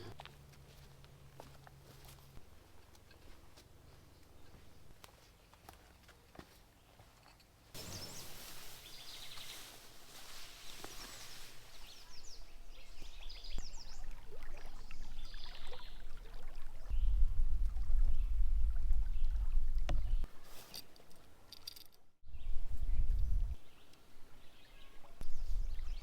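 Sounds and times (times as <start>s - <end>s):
small birds chirping: 6.7s - 16.2s
stream water running: 7.8s - 20.3s
low rumble: 16.9s - 20.3s.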